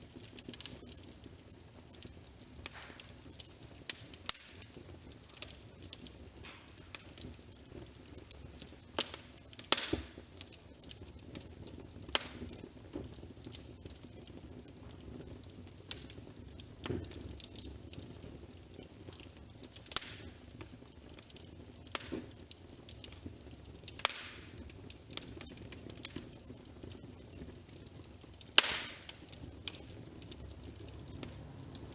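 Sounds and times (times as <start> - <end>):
wood fire crackling and popping: 0.0 - 31.9.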